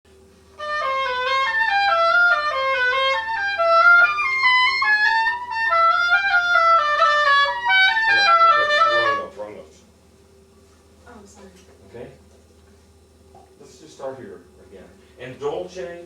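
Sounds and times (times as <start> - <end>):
oboe melody: 0.6 - 9.5.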